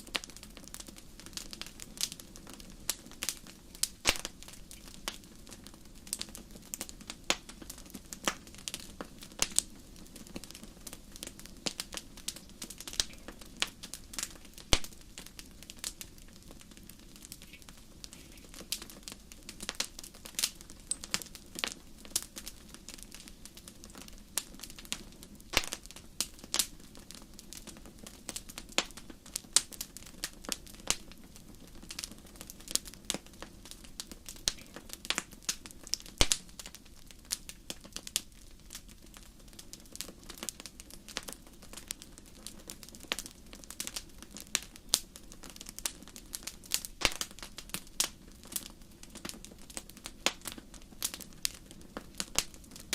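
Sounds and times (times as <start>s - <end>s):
wood fire crackling: 0.0s - 52.9s.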